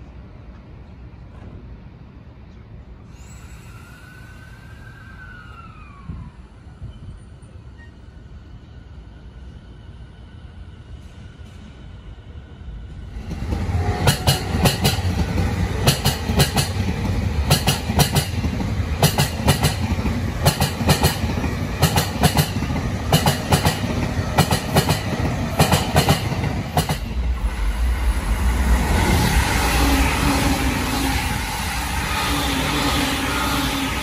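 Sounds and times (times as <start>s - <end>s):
train passing rumble: 0.0s - 34.0s
train wheels clattering over rail joints: 13.4s - 27.2s.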